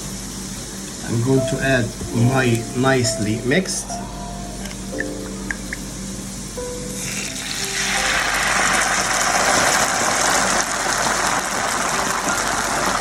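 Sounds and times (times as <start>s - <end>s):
sauce sizzling in a hot pan: 5.9s - 13.0s.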